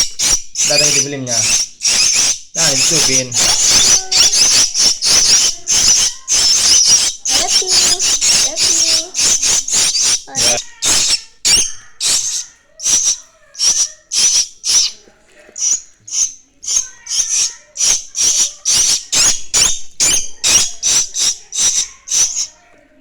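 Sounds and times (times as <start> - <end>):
nestlings hissing begging calls: 0.0 - 22.7.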